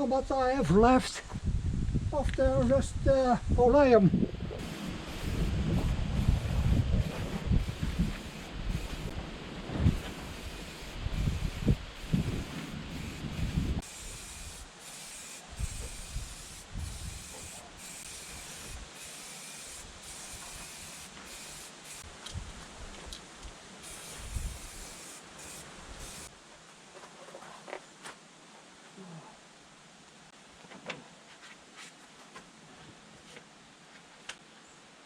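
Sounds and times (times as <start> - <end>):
aerosol paint spraying bursts: 4.6 - 9.2, 9.8 - 22.1, 23.8 - 26.3.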